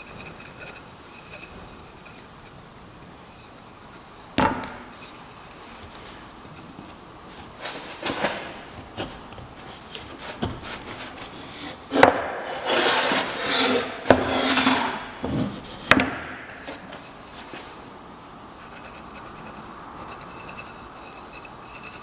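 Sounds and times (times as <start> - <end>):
sharp knocks on wood: 4.4 - 4.8
scraping strokes on wood: 5.0 - 17.9.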